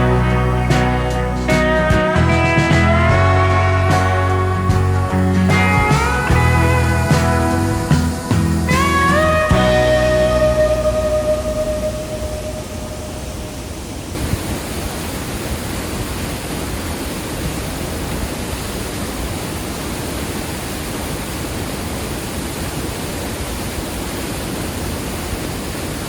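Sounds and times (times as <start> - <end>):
small waterfall pouring: 14.1 - 26.0.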